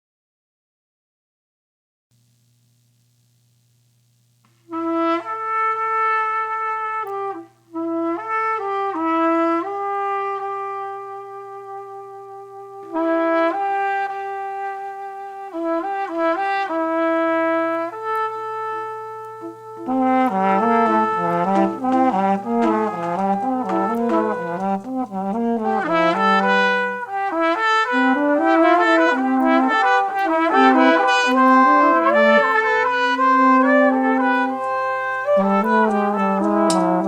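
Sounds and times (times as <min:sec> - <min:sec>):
faint low hum: 0:02.1 - 0:08.6, 0:14.2 - 0:37.0
trumpets playing in harmony: 0:04.6 - 0:37.0.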